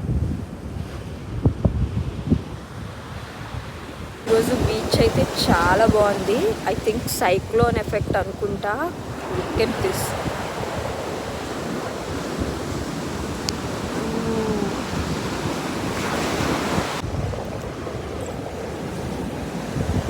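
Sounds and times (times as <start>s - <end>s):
wind buffeting microphone: 0.0s - 20.0s
sea waves breaking on shore: 0.4s - 20.0s.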